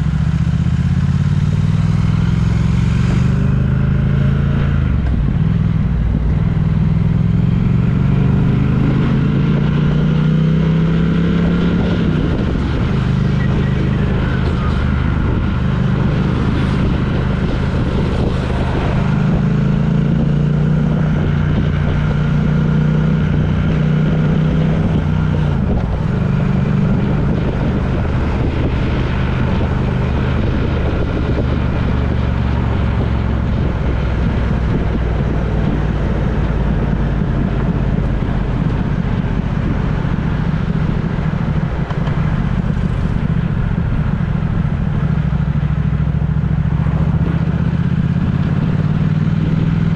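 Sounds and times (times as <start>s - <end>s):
road noise: 0.0s - 49.9s
vehicle engine running: 0.0s - 49.9s.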